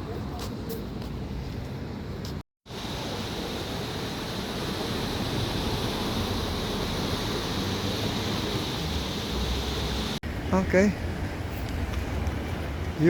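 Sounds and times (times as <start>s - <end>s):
sea surf along the shore: 2.7s - 13.0s.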